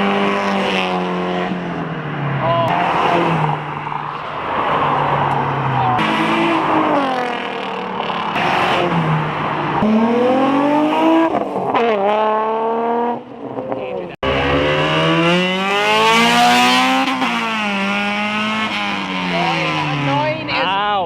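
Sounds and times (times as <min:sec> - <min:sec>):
cars accelerating hard: 0:00.0 - 0:20.6.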